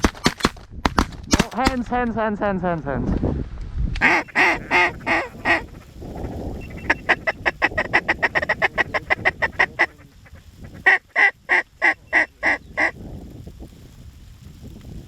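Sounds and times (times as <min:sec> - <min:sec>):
goose honking: 0:04.0 - 0:12.9.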